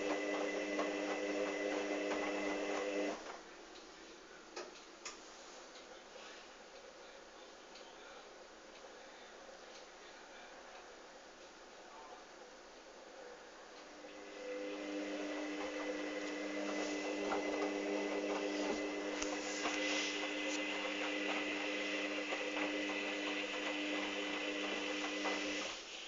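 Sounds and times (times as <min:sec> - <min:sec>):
washing machine motor humming: 0:00.0 - 0:03.3, 0:13.8 - 0:26.0.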